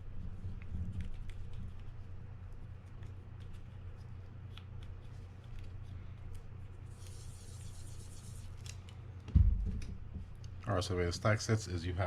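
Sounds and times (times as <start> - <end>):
low hum: 9.3 - 10.7.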